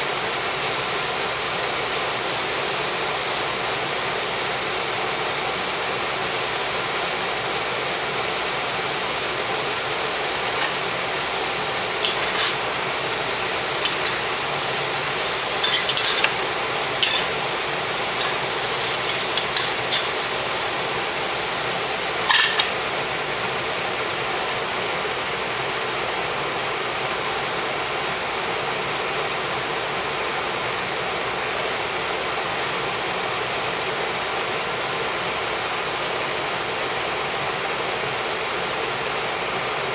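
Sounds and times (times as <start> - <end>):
stir-fry sizzling in a pan: 0.0 - 39.9
spatula clinking and scraping pan: 9.9 - 23.1.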